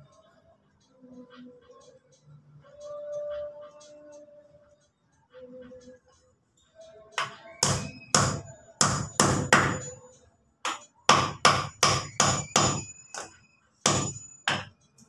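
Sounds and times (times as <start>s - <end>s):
hammer striking nails into wood: 7.2s - 9.9s, 10.7s - 14.8s.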